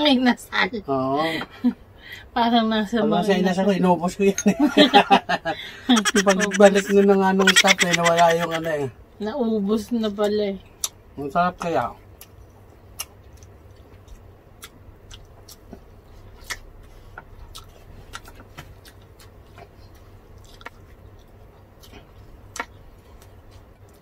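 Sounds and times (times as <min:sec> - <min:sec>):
low steady hum: 0:04.1 - 0:09.5
chewing and lip smacks: 0:12.2 - 0:24.0.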